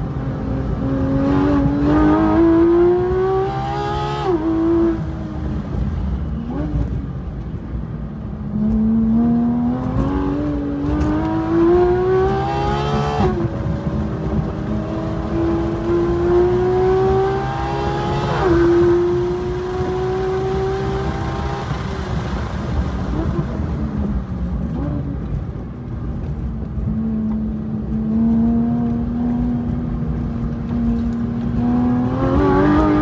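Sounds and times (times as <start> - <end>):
sports car engine revving: 8.5 - 22.0, 30.7 - 33.0.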